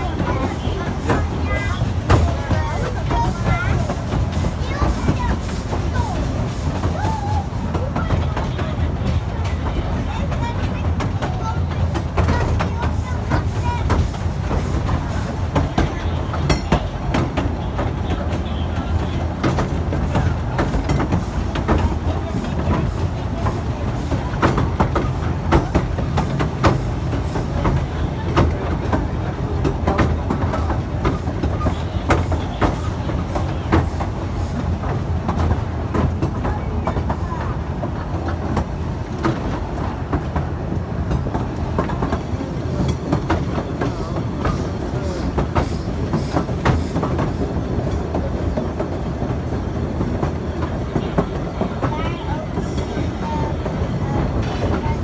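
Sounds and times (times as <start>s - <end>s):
train rumbling along track: 0.0s - 55.0s
wheels clicking and knocking: 0.0s - 55.0s.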